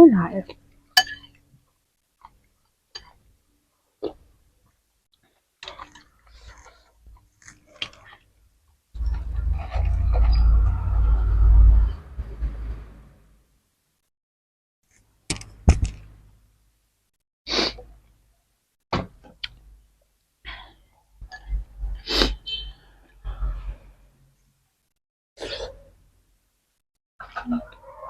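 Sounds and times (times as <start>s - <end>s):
slurping and sniffing: 17.5s - 17.8s, 25.4s - 25.9s.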